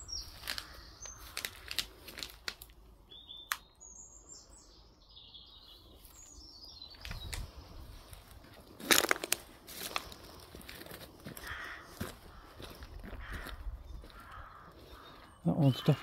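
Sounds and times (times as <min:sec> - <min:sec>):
songbirds chirping: 0:00.0 - 0:16.0
rustling: 0:00.2 - 0:02.8
sharp clicks: 0:03.4 - 0:03.7.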